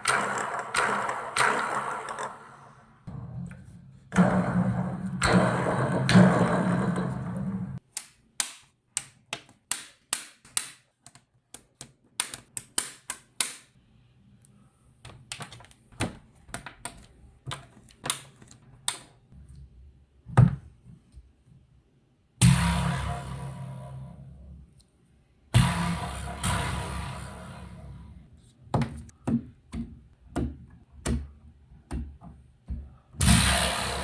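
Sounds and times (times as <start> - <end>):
loud noisy sound: 33.2 - 34.0.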